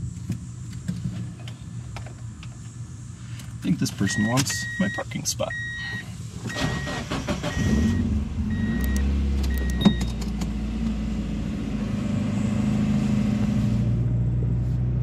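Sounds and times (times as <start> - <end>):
short high beeps: 4.1 - 10.2.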